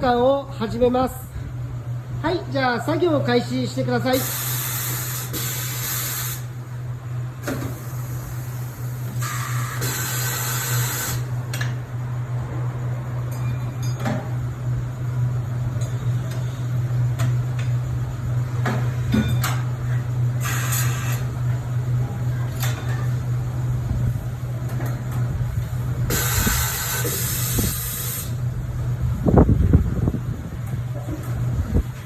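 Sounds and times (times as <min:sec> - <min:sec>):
steady low hum: 0:00.0 - 0:32.0
air hissing: 0:04.2 - 0:06.6, 0:07.5 - 0:11.3, 0:26.1 - 0:28.4
tools clanking and clicking: 0:13.3 - 0:14.3, 0:18.6 - 0:19.6.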